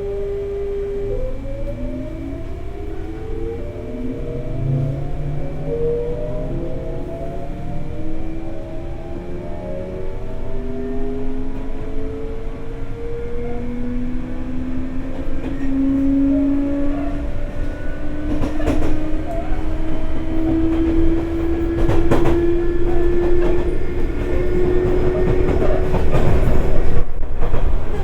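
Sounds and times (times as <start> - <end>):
train motors whining: 0.0 - 27.0
wheel clacks over rail joints: 17.5 - 28.0.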